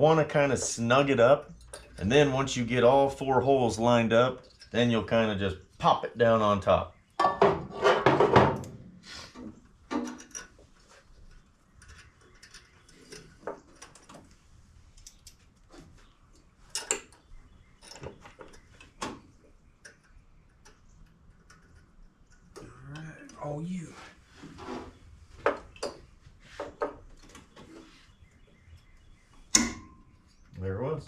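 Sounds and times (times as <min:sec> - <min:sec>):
metal parts clicking and tapping: 0:11.3 - 0:14.2
sharp metal knock: 0:29.5 - 0:30.0.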